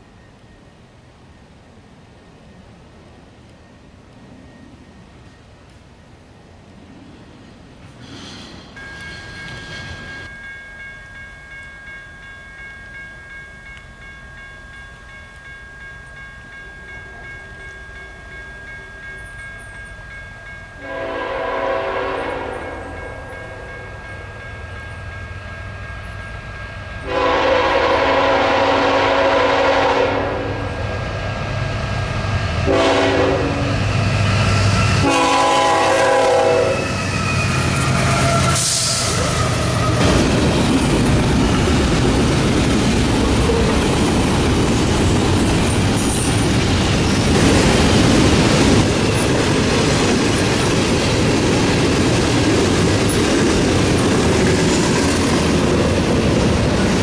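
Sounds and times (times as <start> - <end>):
train rumble: 0.0 - 57.0
locomotive air horn blasts: 20.8 - 23.3, 27.0 - 30.7, 32.7 - 33.8, 35.0 - 39.2.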